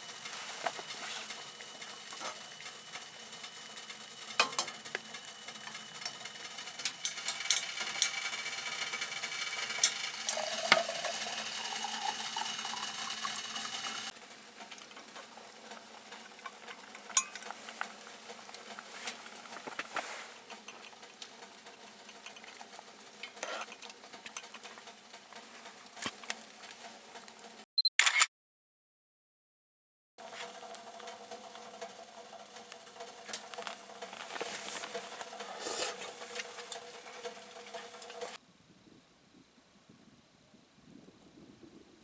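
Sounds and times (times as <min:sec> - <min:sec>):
food sizzling in a pan: 0:00.0 - 0:27.6, 0:30.2 - 0:38.4
utensil clicking against pan: 0:00.6 - 0:14.1, 0:20.5 - 0:25.5.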